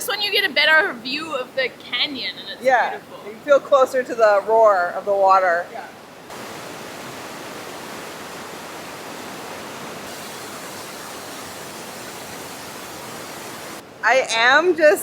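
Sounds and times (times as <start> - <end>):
river water rushing: 5.9 - 14.0.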